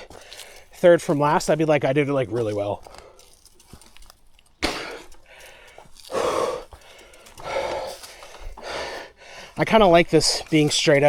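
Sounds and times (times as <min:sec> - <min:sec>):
man breathing hard: 0:04.6 - 0:09.6.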